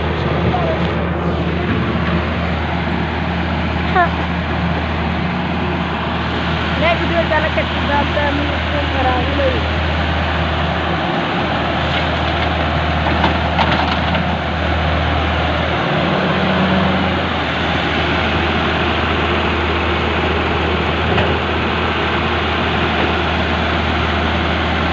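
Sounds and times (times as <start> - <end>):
excavator diesel engine running: 0.0 - 24.9.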